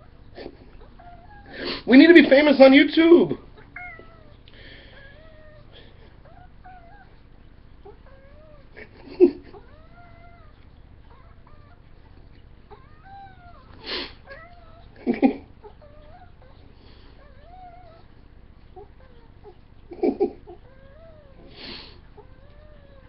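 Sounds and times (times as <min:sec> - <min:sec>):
cat meowing: 0:03.4 - 0:07.2, 0:09.5 - 0:11.9, 0:12.7 - 0:18.1, 0:20.5 - 0:23.0.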